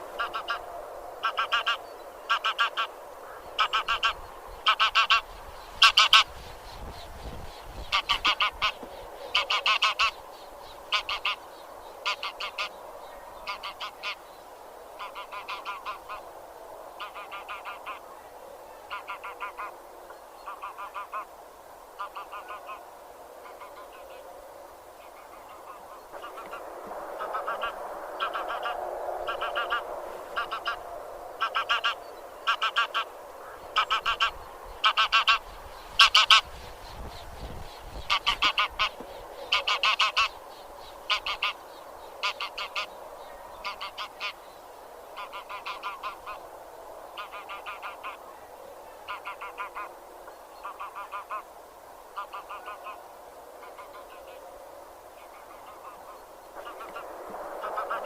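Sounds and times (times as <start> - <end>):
low chatter of geese: 0.0 - 6.3, 7.8 - 14.3, 14.9 - 16.3, 16.9 - 21.4, 22.0 - 24.4, 25.0 - 37.0, 37.9 - 40.4, 41.0 - 41.6, 42.2 - 46.5, 47.1 - 54.6, 55.2 - 58.0
geese honking: 0.2 - 6.3, 7.9 - 10.2, 10.9 - 11.4, 12.0 - 12.7, 13.4 - 14.2, 15.0 - 16.2, 17.0 - 18.0, 18.9 - 19.7, 20.5 - 21.3, 22.0 - 22.8, 25.1 - 36.5, 38.1 - 40.4, 41.1 - 41.6, 42.2 - 42.9, 43.6 - 44.4, 45.2 - 46.4, 47.2 - 48.2, 49.1 - 49.9, 50.6 - 51.5, 52.2 - 53.0, 55.3 - 58.0.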